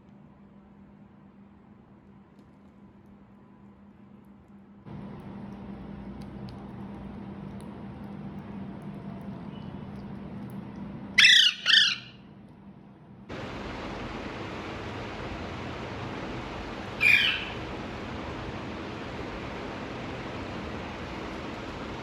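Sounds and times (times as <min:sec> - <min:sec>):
parrot squawking: 0:11.2 - 0:12.2, 0:17.0 - 0:17.6
steady hiss: 0:13.3 - 0:22.0.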